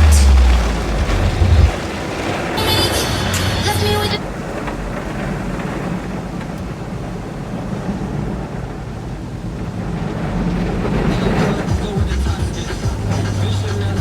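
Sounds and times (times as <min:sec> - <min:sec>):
low rumble: 0:00.0 - 0:05.8, 0:10.3 - 0:14.0
machinery noise: 0:00.0 - 0:06.9, 0:10.2 - 0:14.0
rushing water: 0:00.0 - 0:14.0.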